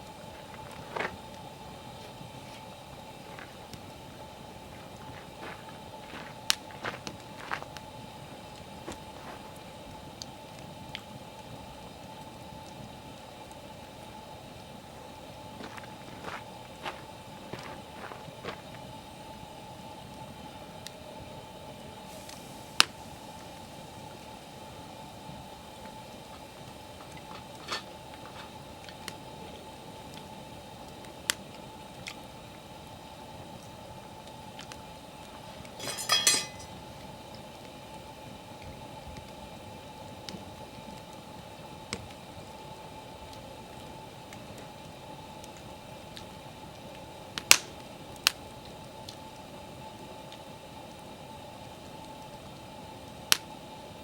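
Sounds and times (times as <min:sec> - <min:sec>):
campfire crackling and popping: 0:00.0 - 0:54.0
faint steady hum: 0:00.0 - 0:54.0
metal clinking and rattling: 0:35.8 - 0:36.8.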